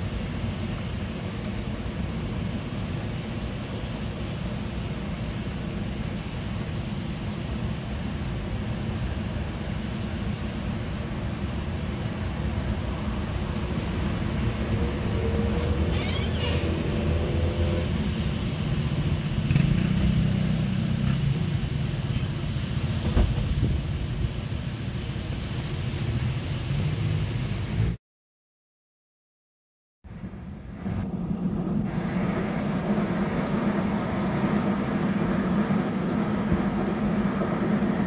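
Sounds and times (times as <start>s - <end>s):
train wheels rumbling on rail: 0.0s - 27.9s, 30.3s - 38.0s
thin wheel squeals: 15.9s - 16.8s, 18.5s - 19.1s.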